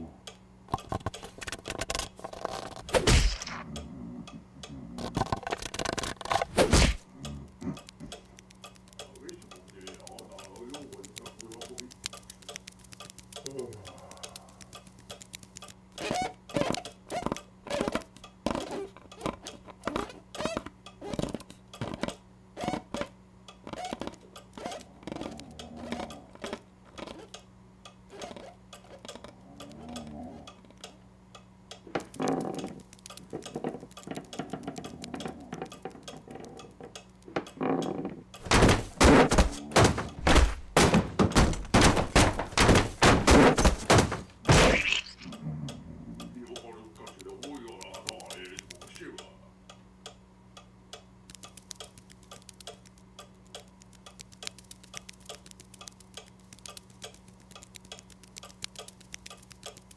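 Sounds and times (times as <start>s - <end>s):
steady low hum: 0.0s - 59.9s
loud thumps: 38.4s - 45.2s.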